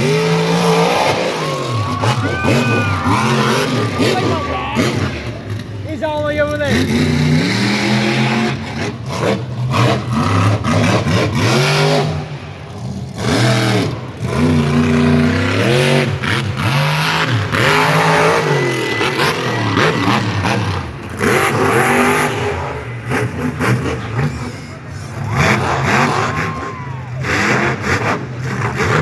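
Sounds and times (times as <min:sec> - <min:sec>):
truck engine revving hard: 0:00.0 - 0:29.0.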